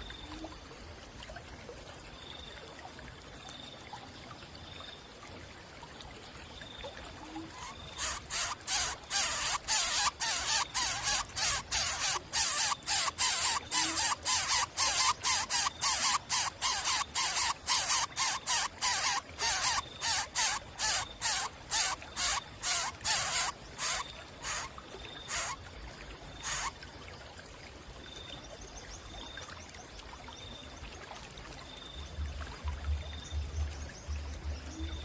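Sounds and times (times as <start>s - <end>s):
faint high peeps: 7.4s - 24.7s
bird chicks hissing begging calls: 7.5s - 24.7s, 25.3s - 25.6s, 26.4s - 26.7s.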